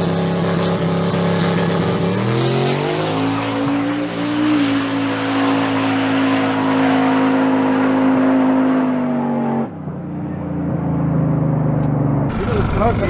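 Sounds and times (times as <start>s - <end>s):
truck engine at high revs: 0.0s - 9.5s, 12.2s - 13.0s.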